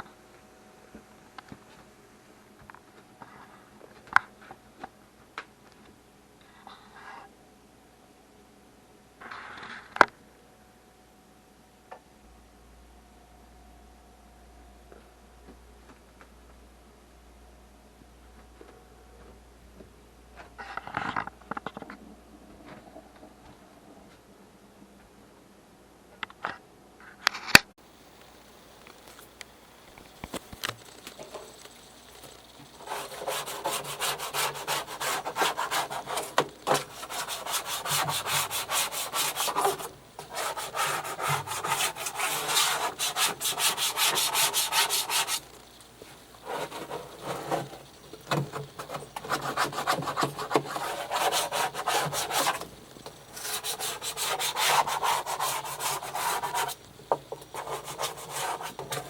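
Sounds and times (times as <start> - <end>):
scrubbing strokes: 27.9 - 59.0.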